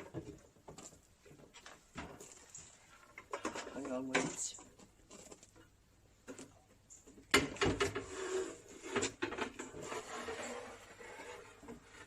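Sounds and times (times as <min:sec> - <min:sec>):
objects clicking and clattering: 0:00.0 - 0:08.1.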